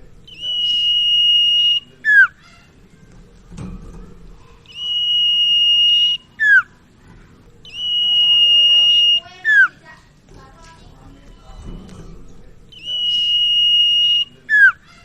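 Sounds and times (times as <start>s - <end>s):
bird whistling song: 0.2s - 2.6s, 4.6s - 6.8s, 7.6s - 9.8s, 12.7s - 15.0s.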